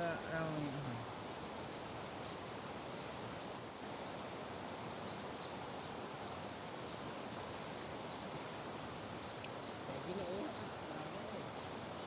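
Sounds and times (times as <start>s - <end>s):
faint high ticks: 9.3s - 9.7s.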